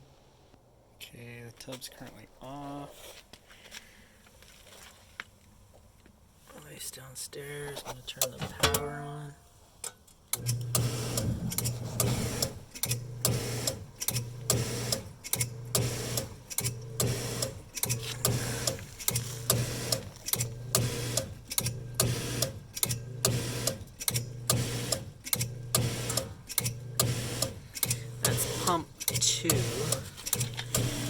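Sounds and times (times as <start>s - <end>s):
pump motor humming: 10.4s - 31.0s.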